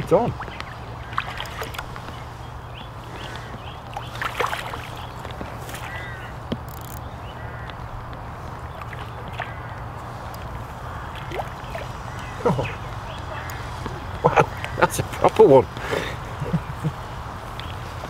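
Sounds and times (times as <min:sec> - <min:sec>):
birds calling: 0:00.0 - 0:18.0.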